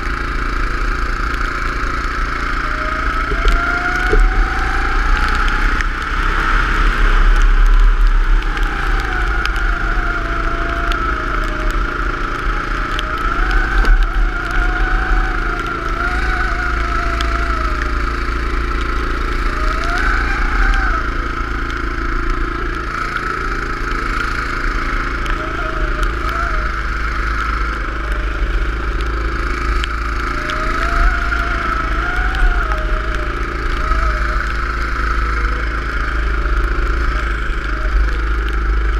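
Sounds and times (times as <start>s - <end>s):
go-kart engine revving: 0.0s - 38.9s
low rumble: 0.0s - 38.9s.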